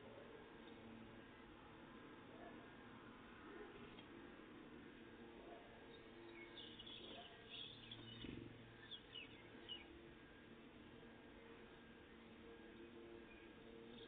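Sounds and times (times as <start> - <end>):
faint songbird calls: 5.9 - 10.0.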